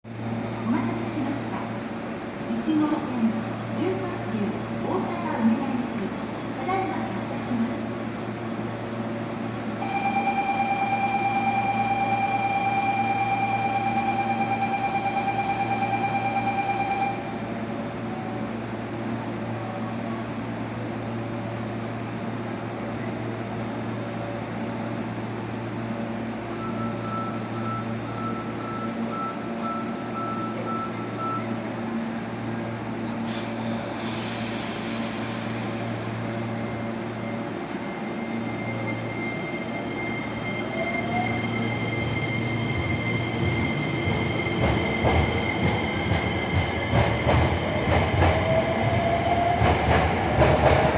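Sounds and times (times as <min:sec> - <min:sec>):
electric train humming: 0:00.1 - 0:19.2, 0:32.8 - 0:50.9.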